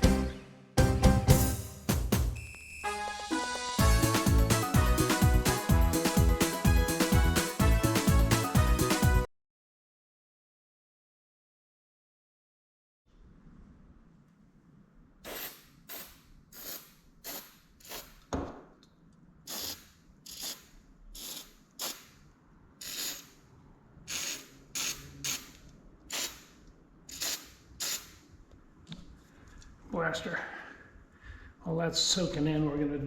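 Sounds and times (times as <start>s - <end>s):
aerosol can spraying: 15.2s - 18.2s, 19.5s - 22.2s, 22.8s - 23.4s, 24.1s - 25.5s, 26.1s - 26.5s, 27.1s - 28.2s.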